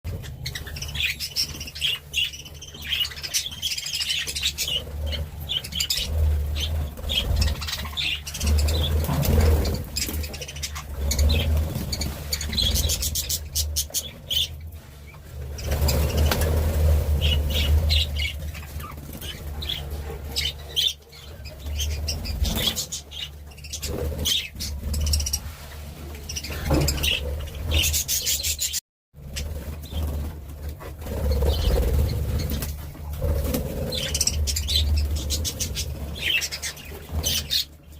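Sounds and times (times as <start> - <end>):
birds chirping: 0.1 - 37.9
wing flutters: 0.1 - 37.9.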